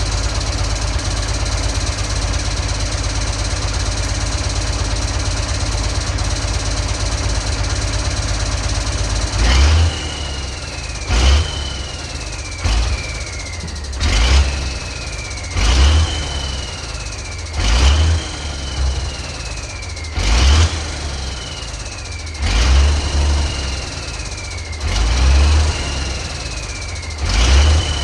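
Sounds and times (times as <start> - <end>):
truck engine revving: 0.0 - 28.0
turbocharger whistle: 9.3 - 28.0.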